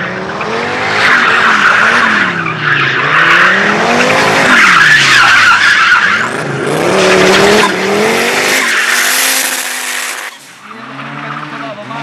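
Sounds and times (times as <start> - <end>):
race car engine revving: 0.0 - 12.0
tyres squealing and skidding: 0.0 - 12.0.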